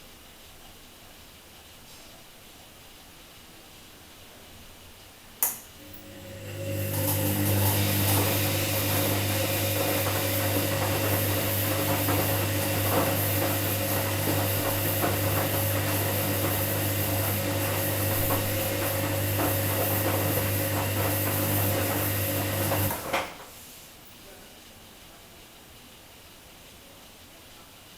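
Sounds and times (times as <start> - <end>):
washing machine running: 5.8 - 23.6.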